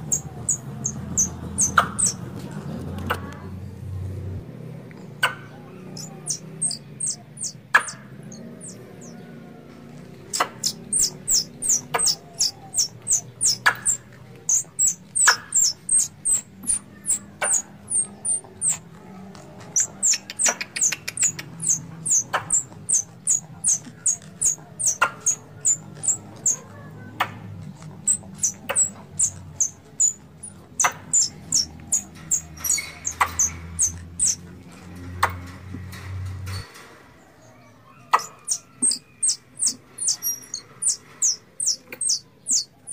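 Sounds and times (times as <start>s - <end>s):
squirrel call chirps: 0.0s - 2.2s, 5.2s - 9.2s, 10.3s - 18.9s, 19.7s - 26.7s, 27.9s - 34.4s, 38.0s - 42.9s.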